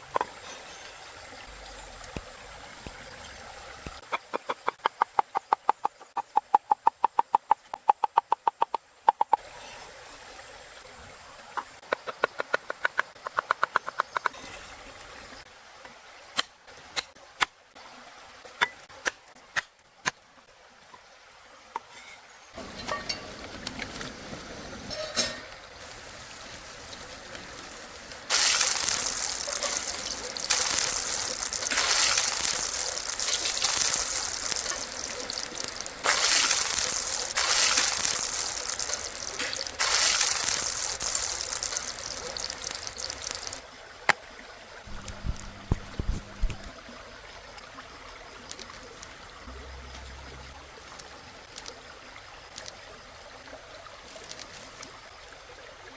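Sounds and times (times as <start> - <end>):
flowing water rushing: 0.0 - 4.2, 22.6 - 55.9.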